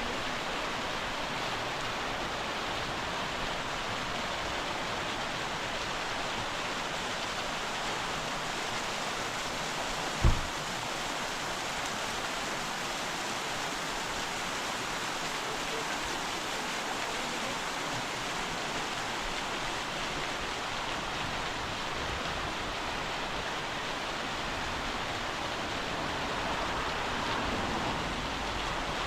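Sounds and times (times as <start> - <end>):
waterfall rushing: 0.0 - 29.0
low thump: 10.2 - 10.6.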